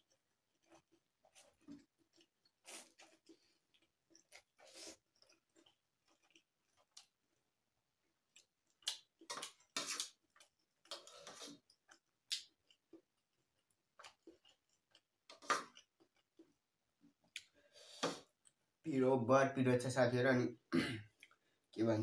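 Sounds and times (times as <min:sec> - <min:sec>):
wet mouth clicks and lip smacks: 0:08.4 - 0:10.2.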